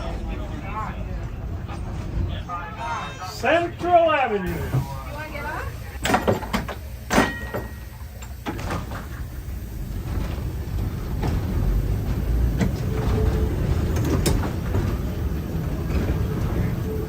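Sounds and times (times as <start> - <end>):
streetcar rumble: 0.0 - 17.0
wheels clicking on track: 4.5 - 17.0
sharp clunk: 6.0 - 7.8.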